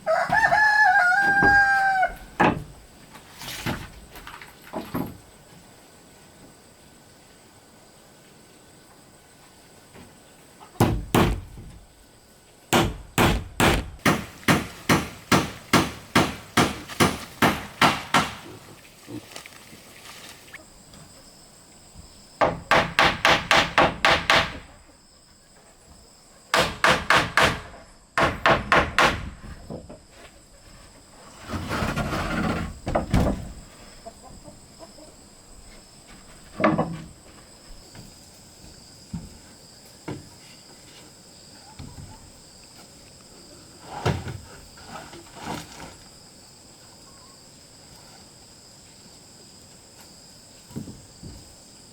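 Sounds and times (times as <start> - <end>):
hammer striking wood: 10.8 - 11.8, 12.7 - 18.5, 22.4 - 24.7, 26.5 - 29.4.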